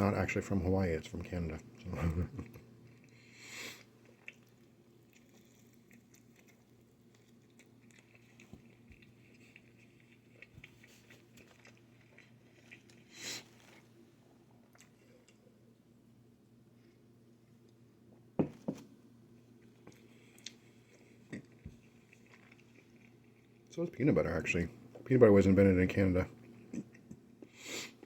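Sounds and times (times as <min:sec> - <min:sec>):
steady low hum: 0:00.0 - 0:28.0
chewing food: 0:01.8 - 0:15.8, 0:19.5 - 0:23.7, 0:26.3 - 0:27.6.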